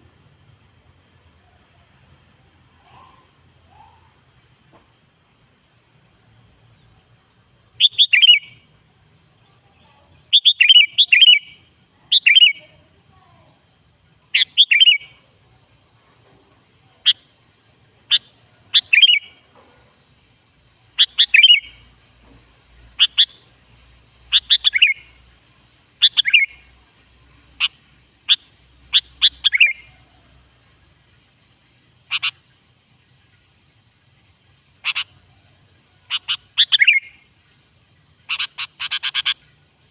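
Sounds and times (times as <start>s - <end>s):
bulbul singing: 7.7s - 8.7s, 9.5s - 12.9s, 14.3s - 15.3s, 18.0s - 19.5s, 20.8s - 25.3s, 26.0s - 30.5s, 36.0s - 37.3s.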